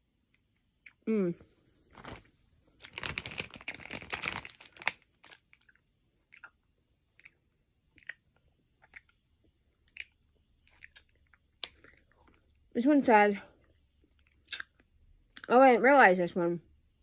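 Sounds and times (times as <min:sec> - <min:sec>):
wet crackly candy chewing: 0:01.9 - 0:12.7, 0:13.5 - 0:15.6.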